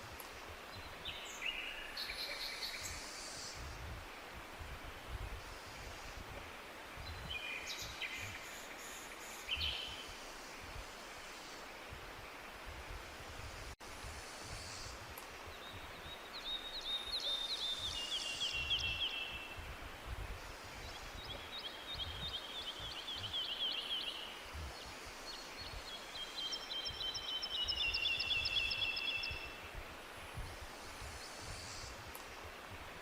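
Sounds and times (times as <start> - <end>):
songbirds singing trilled songs: 0.1 - 3.8, 6.9 - 10.2, 14.5 - 29.8.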